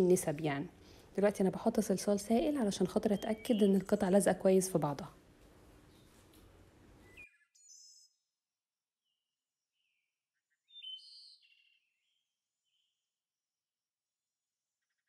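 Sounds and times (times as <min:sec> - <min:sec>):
high bird chirps: 0:07.0 - 0:08.2, 0:09.8 - 0:12.9.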